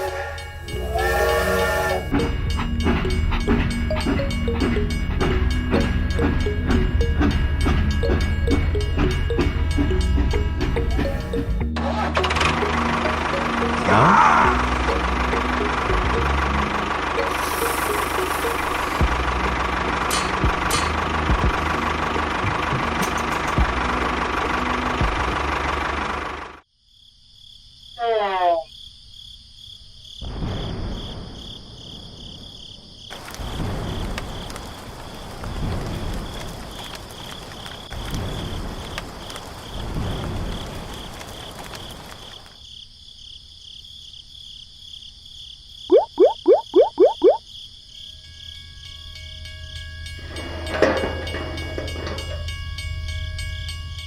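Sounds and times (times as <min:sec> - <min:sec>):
outdoor background noise: 0:00.0 - 0:54.0
cricket chirping: 0:26.6 - 0:54.0.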